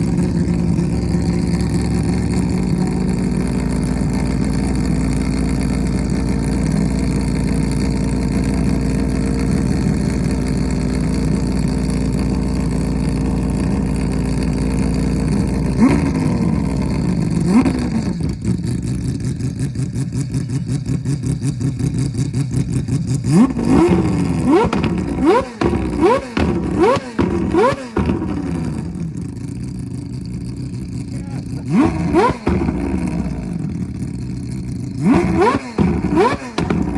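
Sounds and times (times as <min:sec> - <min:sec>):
rotary engine revving and idling: 0:00.0 - 0:36.9.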